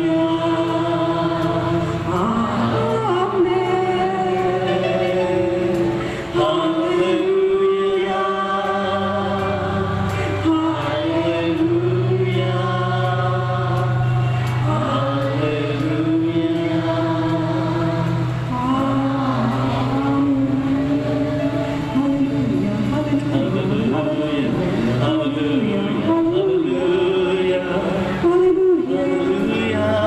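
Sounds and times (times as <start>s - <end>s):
worship singing: 0.0s - 30.0s.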